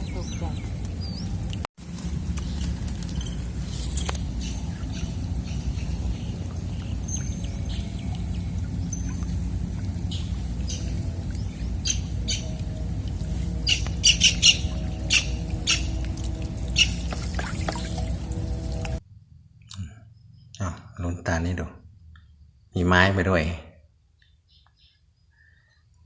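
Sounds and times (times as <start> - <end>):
birds chirping and squawking: 0.0 - 1.5, 2.4 - 19.0
steady low rumble: 0.0 - 20.8.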